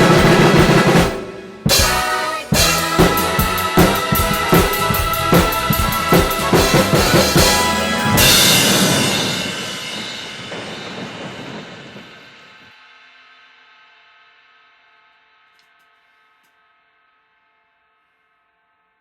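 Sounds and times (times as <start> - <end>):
backing track music: 0.0 - 10.1
drum kit playing: 0.0 - 12.5
cymbal crash: 0.0 - 13.2.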